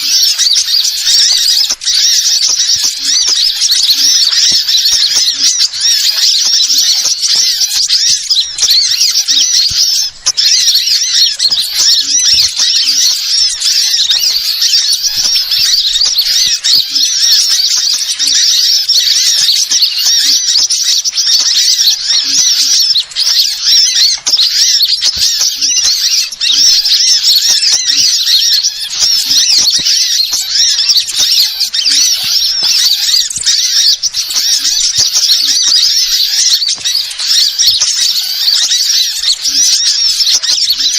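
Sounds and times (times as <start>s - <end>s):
many small birds chirping: 0.0s - 40.9s.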